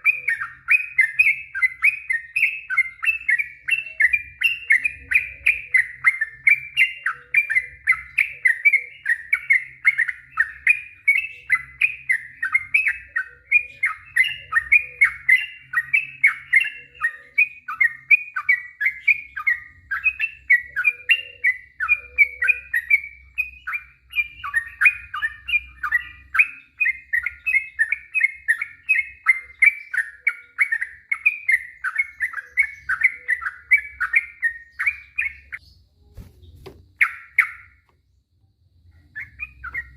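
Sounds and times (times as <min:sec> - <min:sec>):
bulbul singing quick chirps: 0:00.0 - 0:37.8.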